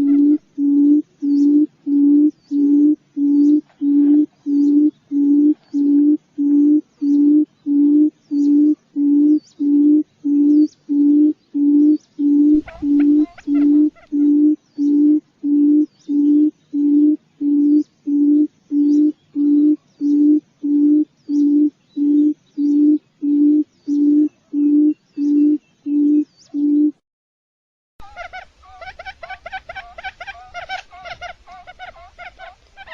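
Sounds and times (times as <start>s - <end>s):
quail lure call hooting: 0.0s - 7.2s, 11.8s - 16.3s, 28.0s - 32.9s.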